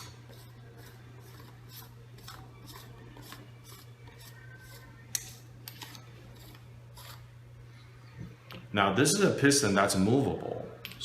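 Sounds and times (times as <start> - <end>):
faint metal scraping strokes: 0.0 - 8.0.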